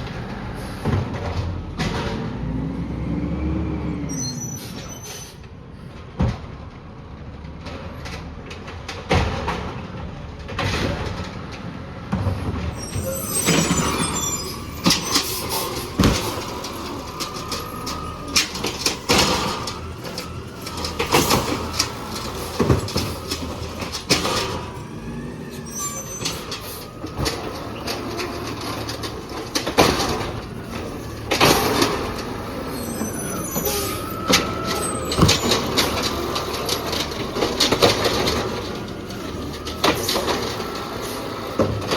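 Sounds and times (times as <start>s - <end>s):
high squeal: 4.0s - 5.4s, 12.7s - 29.5s, 30.5s - 38.2s
garbage truck arm clanking: 12.2s - 41.9s.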